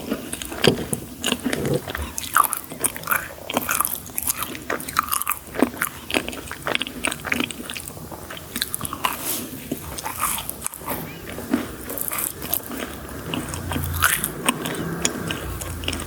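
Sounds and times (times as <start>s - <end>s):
crunchy bites and chewing: 0.0s - 16.0s.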